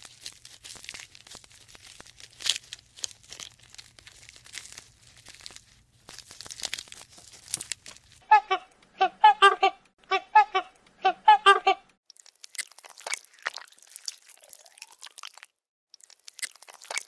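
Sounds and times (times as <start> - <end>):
crackling and rustling clicks: 0.0 - 8.2.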